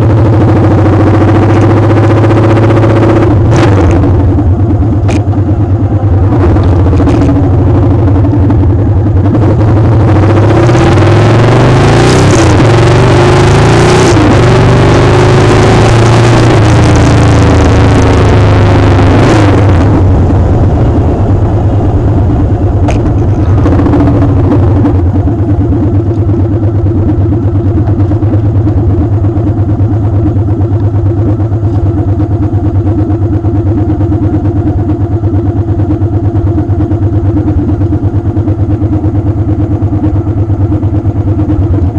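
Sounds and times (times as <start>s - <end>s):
motorcycle engine running: 0.0s - 41.9s
heavy wind noise: 19.1s - 25.4s.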